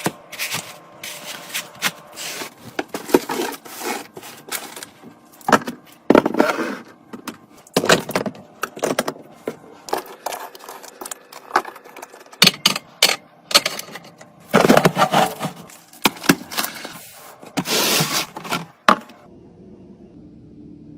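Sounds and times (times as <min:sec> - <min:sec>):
containers clicking and clattering: 0:02.6 - 0:19.2.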